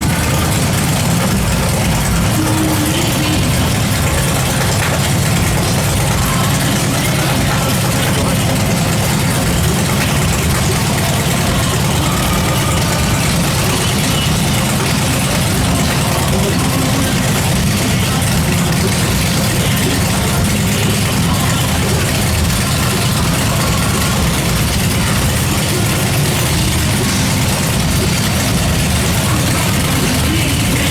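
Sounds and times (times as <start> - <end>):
motorcycle engine idling: 0.0 - 30.9.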